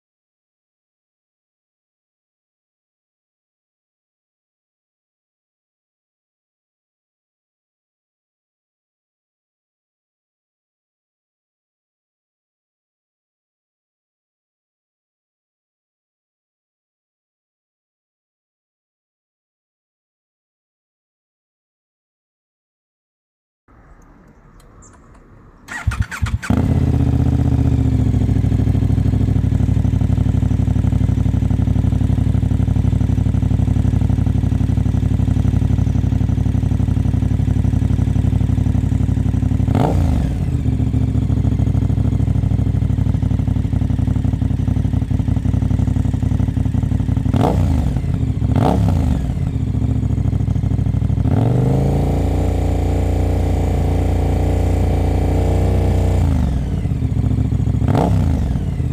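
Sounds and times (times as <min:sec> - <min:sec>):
motorcycle throttle blips: 0:23.7 - 0:55.3
motorcycle engine idling: 0:23.7 - 0:58.9.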